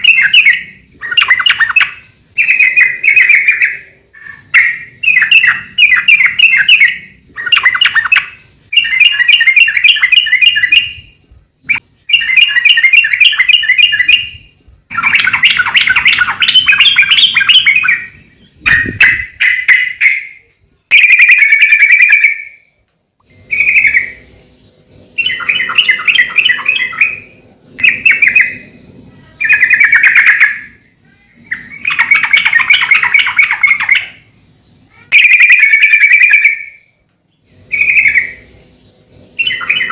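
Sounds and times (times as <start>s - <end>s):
bird singing bubbling chatter: 0.0s - 39.9s.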